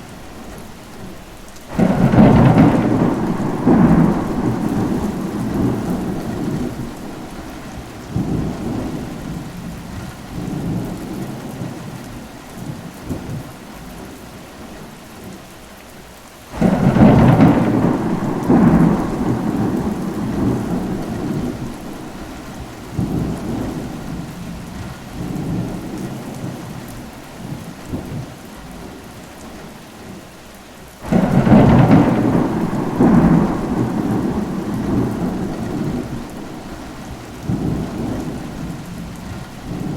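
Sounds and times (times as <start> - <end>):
steady rain: 0.0 - 39.9
rolling thunder: 1.7 - 12.0, 16.6 - 28.9, 31.0 - 39.9.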